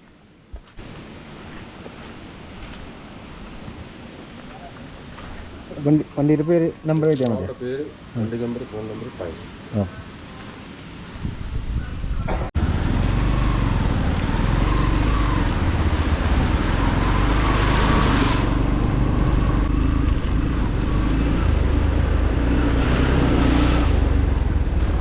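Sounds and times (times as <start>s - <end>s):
wind rush on microphone: 10.9s - 12.8s, 13.5s - 25.0s.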